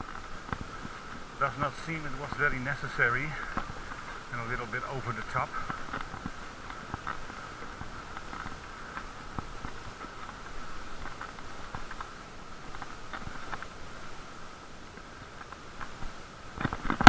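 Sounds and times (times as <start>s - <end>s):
muffled bicycle rolling hum: 0.0s - 17.0s
small clicks and rattles: 5.5s - 14.2s, 15.0s - 17.0s.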